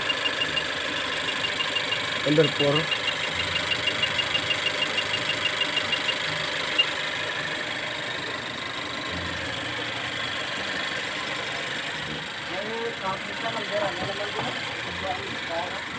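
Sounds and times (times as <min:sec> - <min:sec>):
sharp even ticking: 0:00.0 - 0:07.0
car engine idling: 0:00.0 - 0:15.9.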